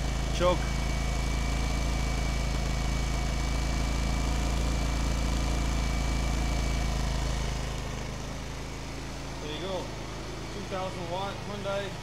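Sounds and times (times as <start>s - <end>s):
generator engine running: 0.0s - 12.0s
thin steady whine: 3.2s - 12.0s.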